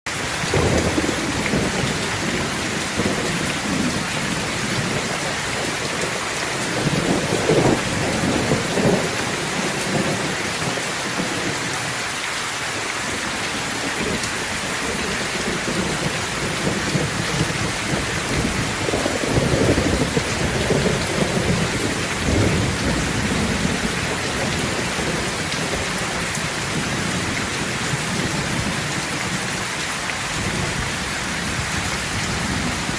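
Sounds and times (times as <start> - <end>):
heavy rain falling: 0.1 - 32.9
thunder rumbling: 0.2 - 11.6, 13.3 - 29.7, 30.3 - 32.9.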